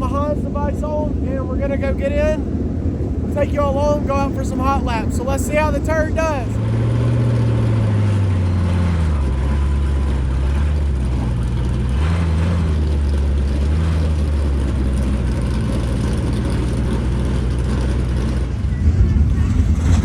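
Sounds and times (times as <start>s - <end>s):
race car engine revving: 2.7s - 20.0s.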